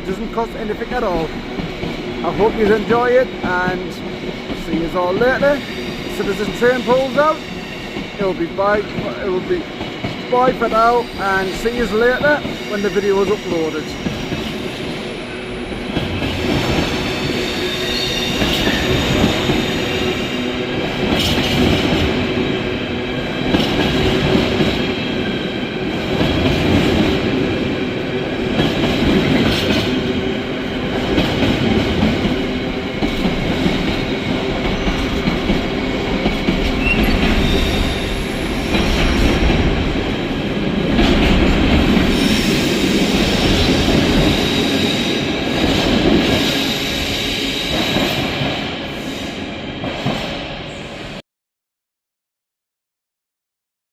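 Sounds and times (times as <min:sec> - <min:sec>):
train wheels rumbling: 0:00.0 - 0:50.8
train whining tones: 0:10.4 - 0:51.2.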